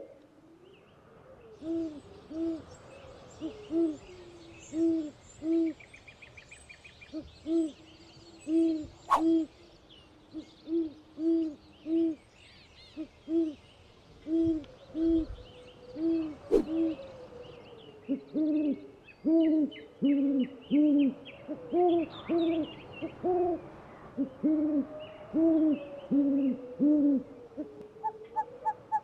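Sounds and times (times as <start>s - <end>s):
small birds chirping: 0.0s - 23.1s
bird hooting: 14.2s - 23.6s, 24.2s - 29.0s.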